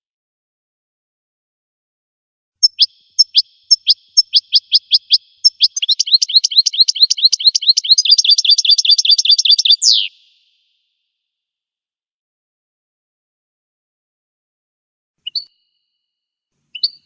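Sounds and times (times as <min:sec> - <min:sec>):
songbird singing trill: 0:02.6 - 0:10.5, 0:15.2 - 0:15.8, 0:16.7 - 0:17.0.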